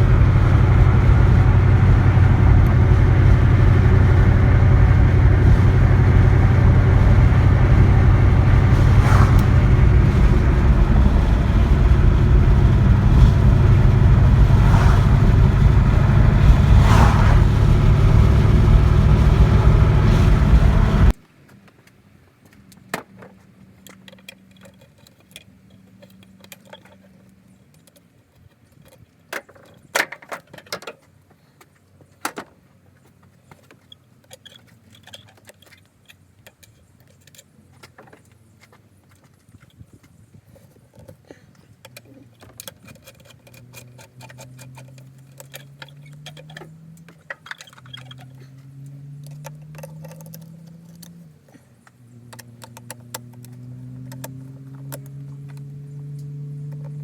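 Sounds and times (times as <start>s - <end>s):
car engine running loudly: 0.0s - 21.2s
faint low engine tone: 0.0s - 21.2s
metallic clicks and jingling: 33.5s - 38.4s, 40.5s - 57.0s.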